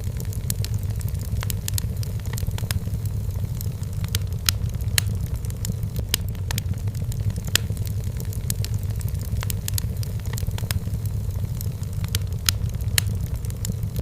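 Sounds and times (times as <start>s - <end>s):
wood fire crackling in fireplace: 0.0s - 14.0s.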